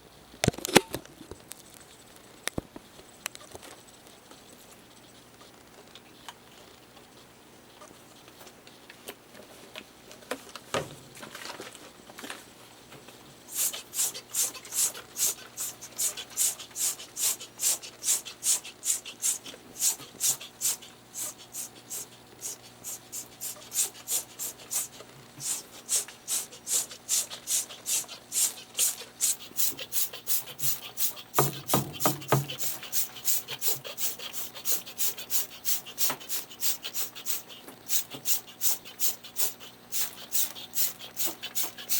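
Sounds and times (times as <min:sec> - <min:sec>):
brush scrubbing: 0:13.5 - 0:41.9.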